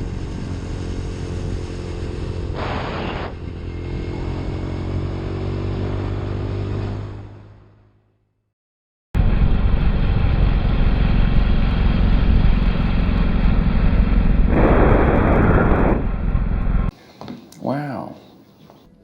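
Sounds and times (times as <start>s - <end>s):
motorcycle engine running: 9.2s - 16.9s
rushing noise: 9.2s - 16.9s.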